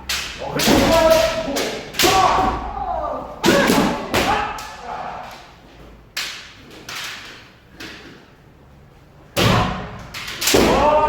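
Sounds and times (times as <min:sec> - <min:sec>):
bamboo swords hitting armour: 0:00.0 - 0:02.8, 0:03.4 - 0:04.8, 0:09.4 - 0:11.0.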